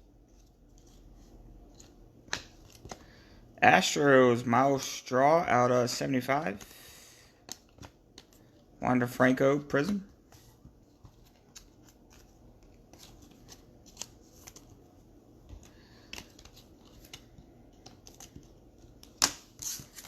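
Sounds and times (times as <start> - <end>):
trading cards flipped by hand: 11.0 - 14.8.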